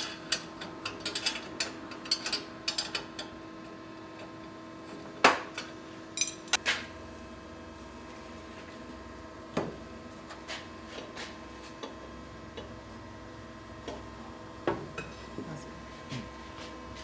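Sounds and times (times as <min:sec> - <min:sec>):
metal parts clanking: 0:06.2 - 0:06.6.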